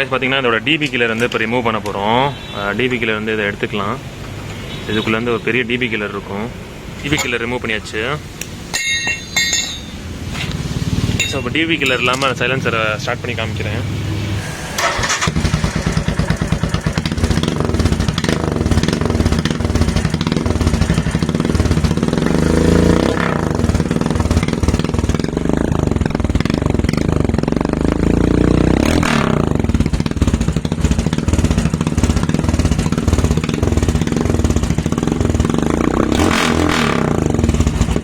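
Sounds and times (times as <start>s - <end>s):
motorcycle engine thumping: 14.8s - 38.0s.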